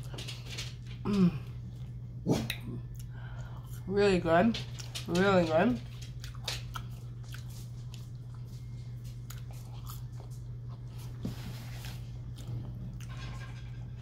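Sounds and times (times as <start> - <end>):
steady low hum: 0.0 - 14.0
person chewing fries: 6.0 - 14.0.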